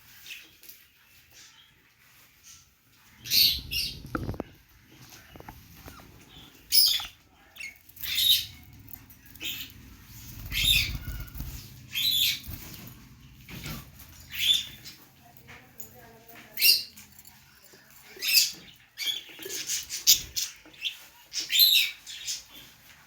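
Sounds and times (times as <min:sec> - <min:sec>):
budgerigars chirping: 0:05.2 - 0:12.9, 0:13.6 - 0:15.0
soft bird twittering: 0:05.2 - 0:13.5.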